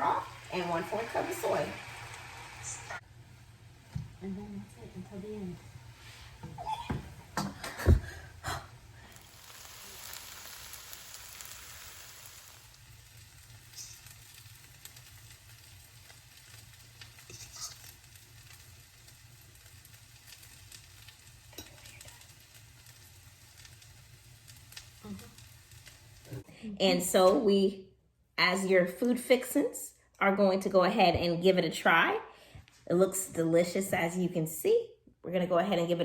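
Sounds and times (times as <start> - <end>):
noodles sizzling in a pan: 0.0 - 26.4.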